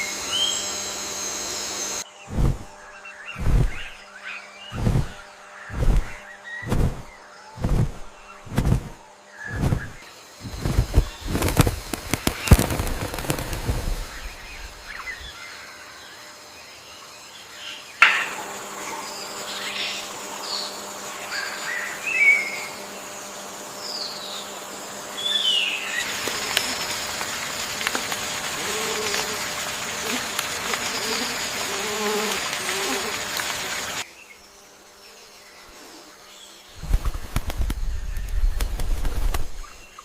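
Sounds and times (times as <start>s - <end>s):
steady hum: 0.0s - 15.9s
insects buzzing: 0.0s - 40.0s
small birds chirping: 1.8s - 40.0s.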